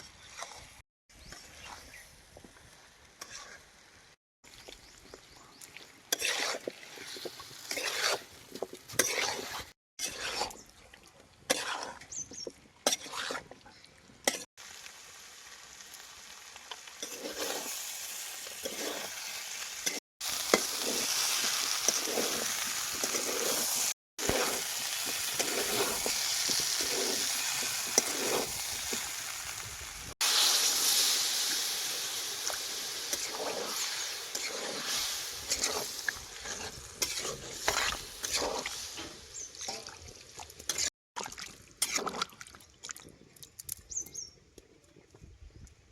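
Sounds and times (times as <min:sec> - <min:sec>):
curry sizzling in a pan: 0:06.1 - 0:09.6, 0:14.6 - 0:39.5
utensil scraping a pan: 0:06.1 - 0:10.6, 0:11.5 - 0:12.2, 0:12.9 - 0:13.5, 0:21.9 - 0:28.6, 0:33.2 - 0:39.2.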